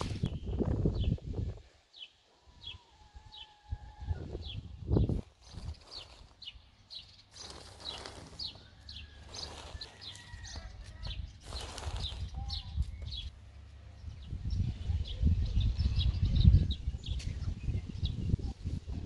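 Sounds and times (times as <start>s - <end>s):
small bird chirping: 0.0s - 18.7s.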